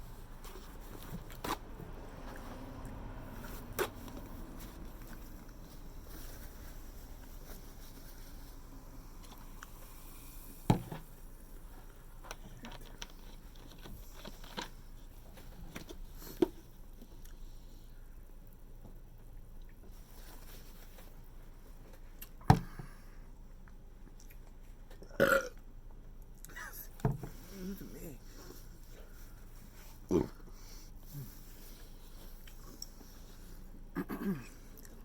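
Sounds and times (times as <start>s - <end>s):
wet squishing and chewing: 23.6s - 25.0s.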